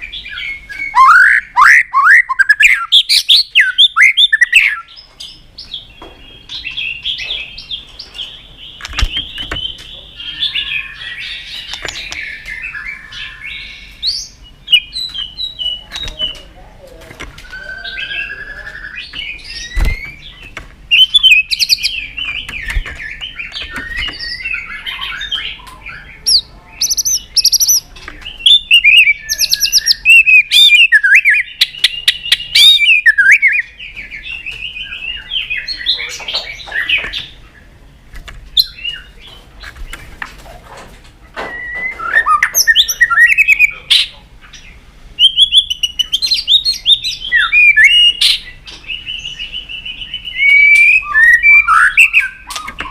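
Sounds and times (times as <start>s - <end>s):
sharp clicking bird calls: 0.0s - 16.5s, 18.2s - 52.9s
bird singing whistled phrases: 0.3s - 5.0s, 17.4s - 20.2s, 20.9s - 27.8s, 28.4s - 33.8s, 41.4s - 43.8s, 45.2s - 52.9s.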